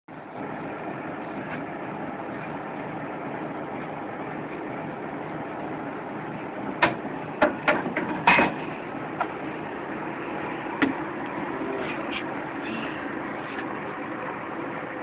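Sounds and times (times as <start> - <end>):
ship engine rumble: 0.1 - 15.0
sharp knocks and clatters: 6.8 - 9.4.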